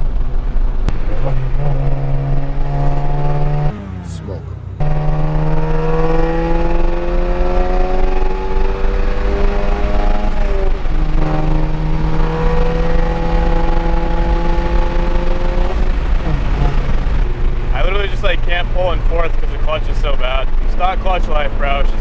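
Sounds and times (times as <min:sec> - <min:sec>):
car engine accelerating hard: 0:00.0 - 0:22.0.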